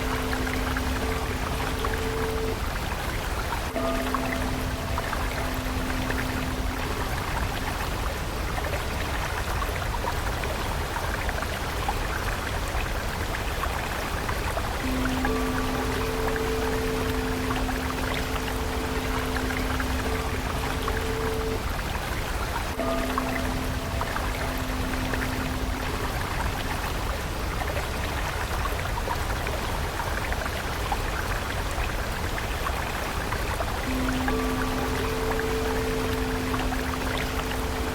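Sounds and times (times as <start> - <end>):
soft synth note: 0.0 - 2.7, 3.7 - 7.9, 14.8 - 21.7, 22.7 - 27.0, 33.8 - 37.9
soft held musical tone: 0.0 - 11.9, 12.8 - 29.7, 31.7 - 37.9
stream of water flowing: 0.0 - 37.9.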